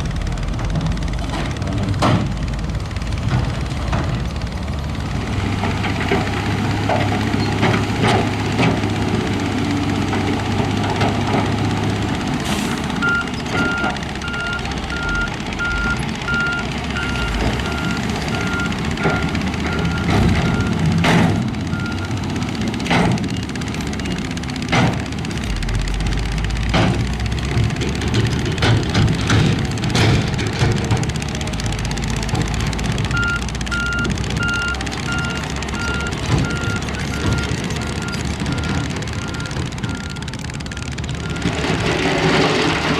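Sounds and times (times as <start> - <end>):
diesel machine engine running: 0.0 - 42.9
metallic clanks and knocks: 0.4 - 4.4, 18.7 - 21.7, 22.4 - 33.0
reversing alarm beeping: 13.0 - 21.0, 21.7 - 22.2, 33.1 - 41.9.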